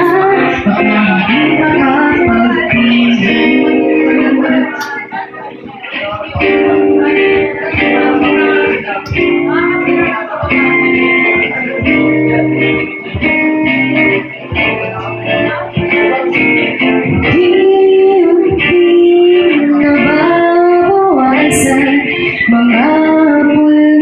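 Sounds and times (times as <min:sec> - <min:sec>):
acoustic guitar chords: 0:00.0 - 0:24.0.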